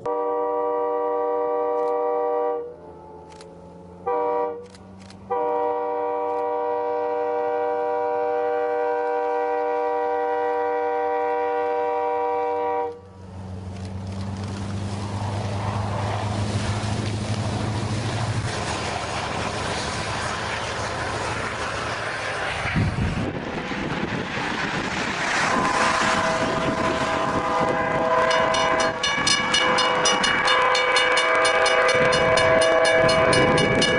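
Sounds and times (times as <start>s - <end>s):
train horn chord: 0.0s - 13.1s, 25.4s - 33.9s
train rushing through snow: 0.0s - 33.9s
low engine drone: 13.0s - 30.7s.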